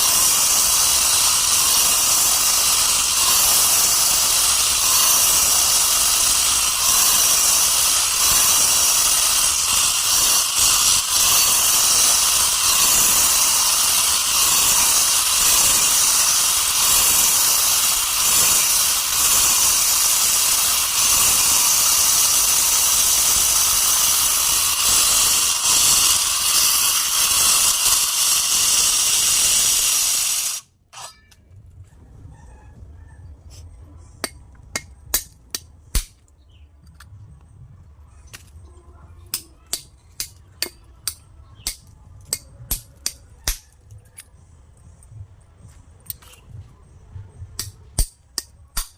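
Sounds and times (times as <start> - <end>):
power saw cutting stone: 0.0 - 31.2.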